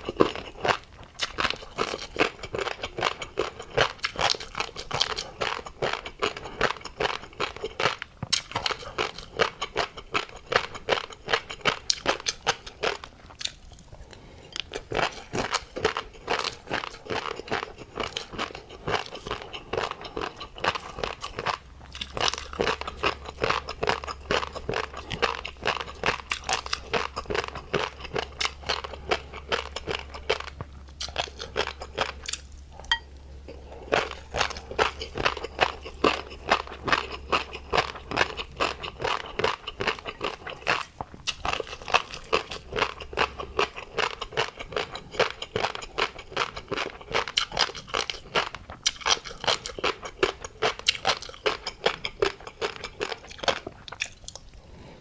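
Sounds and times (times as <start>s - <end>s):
chewing crunchy fish roe: 0.0s - 55.0s.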